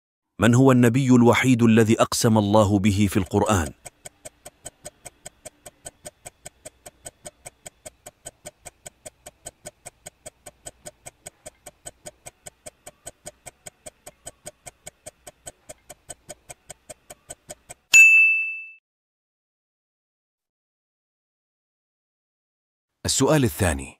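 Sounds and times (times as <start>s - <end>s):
clock-like ticking: 1.3s - 17.9s
bright ding: 17.9s - 18.8s.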